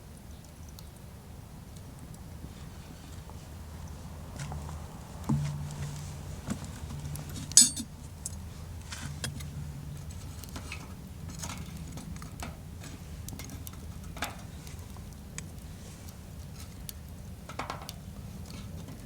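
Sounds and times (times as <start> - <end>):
cookware and utensils clinking: 7.0 - 7.9.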